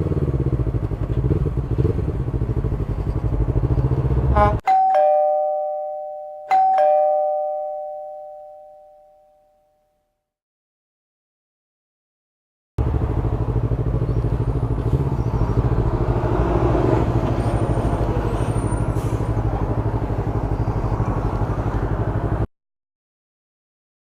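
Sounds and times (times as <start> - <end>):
motorcycle engine running: 0.0 - 4.6, 12.8 - 18.4.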